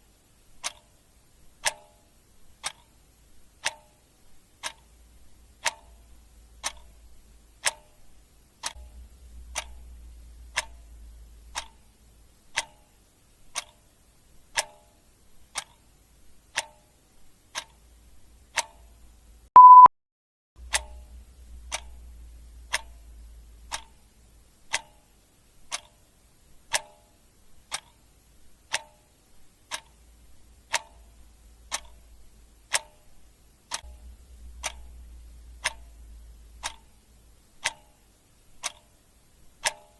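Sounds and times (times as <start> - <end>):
clock ticking: 0.5 - 19.9, 20.6 - 39.9
short high beep: 19.6 - 19.9.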